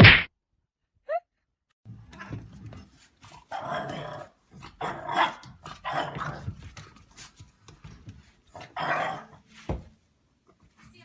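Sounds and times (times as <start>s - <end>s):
sharp knock: 0.0s - 0.3s.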